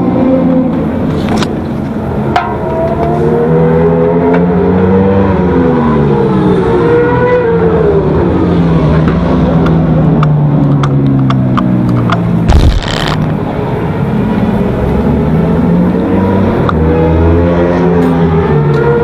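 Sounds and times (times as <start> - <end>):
loud short rush of noise: 12.5 - 13.3
motorcycle engine at racing speed: 14.9 - 19.0.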